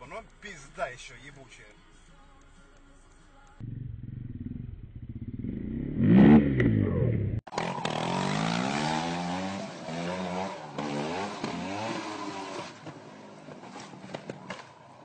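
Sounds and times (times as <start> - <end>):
motorcycle engine running: 3.6 - 9.6
motorcycle engine revving: 3.6 - 14.1.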